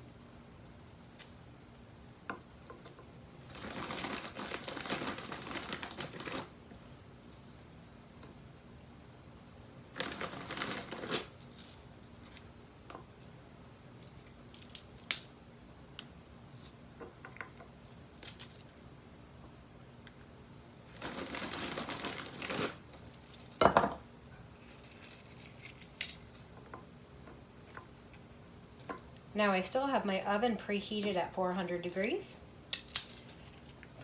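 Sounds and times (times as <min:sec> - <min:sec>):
plastic bag crinkling: 0:03.5 - 0:06.9, 0:09.9 - 0:11.6, 0:20.9 - 0:23.6.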